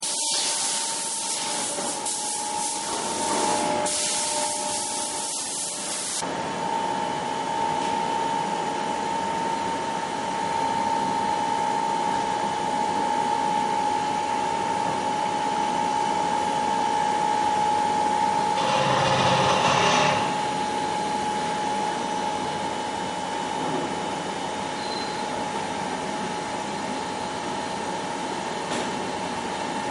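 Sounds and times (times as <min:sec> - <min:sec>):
lathe motor whining: 0:18.5 - 0:20.6.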